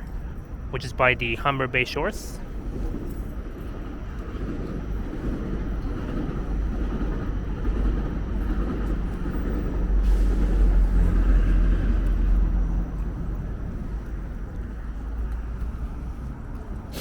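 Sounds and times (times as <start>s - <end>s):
vehicle passing rumble: 9.4s - 17.0s.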